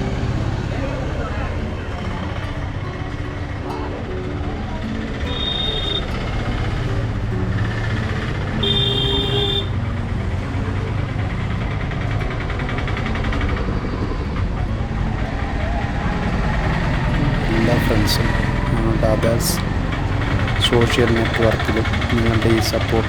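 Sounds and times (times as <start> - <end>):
street traffic engines: 0.0 - 23.0
vehicle horn: 5.3 - 6.1, 8.6 - 9.8.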